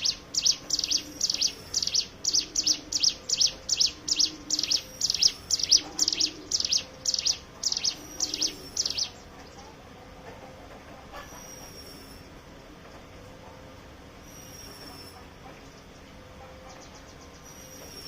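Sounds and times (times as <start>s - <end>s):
bird singing sharp high chirps: 0.0s - 9.2s.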